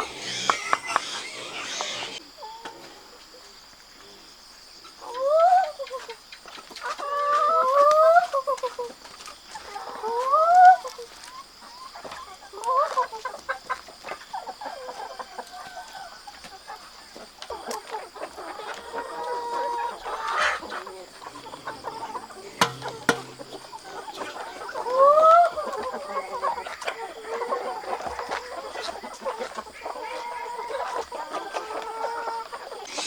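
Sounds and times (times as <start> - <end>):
chicken rising call: 0.0 - 2.6
chickens clucking: 0.0 - 3.0, 5.0 - 8.9, 9.5 - 33.0
sharp click: 22.6 - 23.6.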